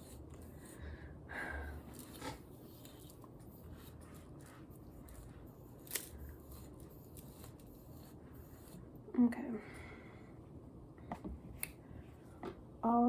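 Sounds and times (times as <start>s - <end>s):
scratchy handling sounds: 1.8s - 8.9s.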